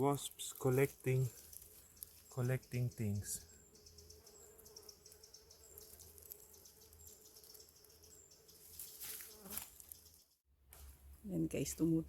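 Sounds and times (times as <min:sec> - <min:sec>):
wasps buzzing: 0:00.1 - 0:10.4.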